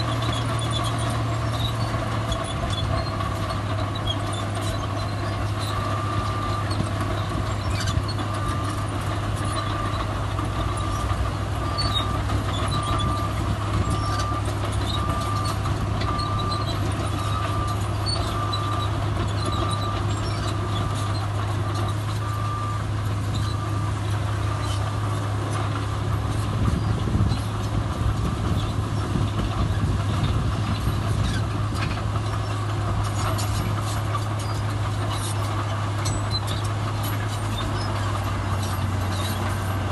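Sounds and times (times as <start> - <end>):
diesel machinery running: 0.0 - 39.9
reversing alarm beeping: 11.6 - 24.8.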